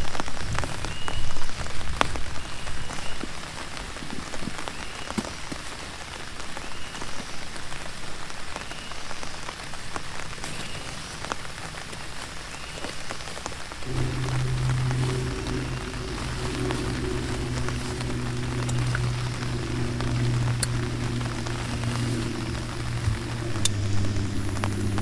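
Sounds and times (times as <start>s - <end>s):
heavy rain falling: 13.7s - 25.0s.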